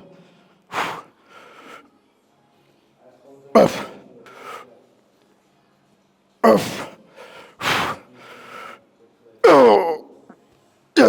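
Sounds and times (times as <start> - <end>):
man breathing hard: 0.0 - 1.9, 6.7 - 8.8
man grunting with strain: 6.4 - 6.9, 9.4 - 10.0.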